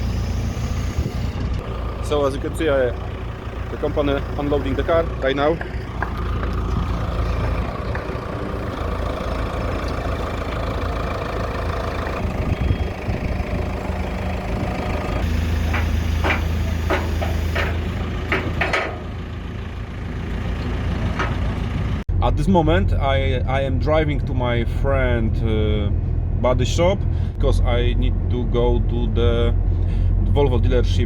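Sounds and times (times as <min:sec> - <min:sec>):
truck engine idling: 0:00.0 - 0:27.9
metal clanks: 0:15.2 - 0:19.3, 0:20.6 - 0:21.7.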